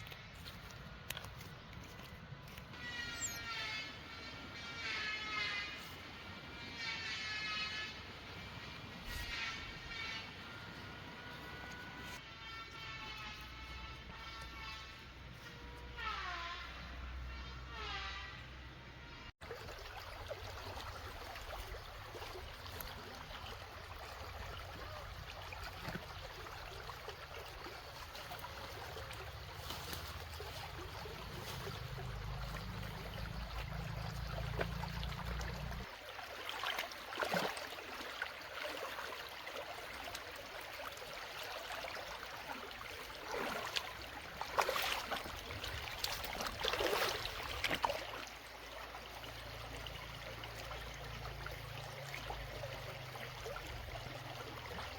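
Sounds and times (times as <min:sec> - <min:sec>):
water splashes: 0:19.4 - 0:54.9
water trickling: 0:19.4 - 0:54.9.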